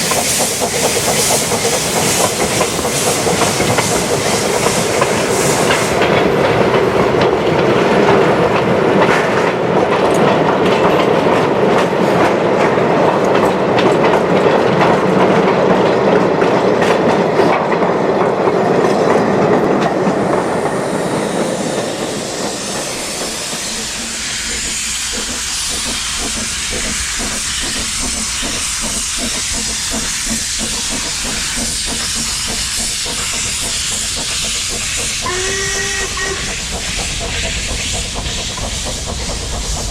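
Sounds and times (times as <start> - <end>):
steam hissing: 0.0 - 9.7, 19.2 - 39.9.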